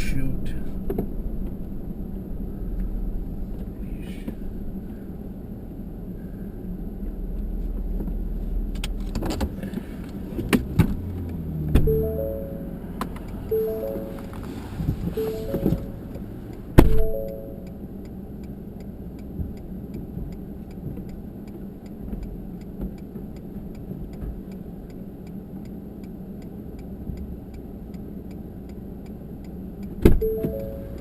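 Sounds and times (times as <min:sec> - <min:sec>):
turn signal clicking: 0:08.8 - 0:31.0.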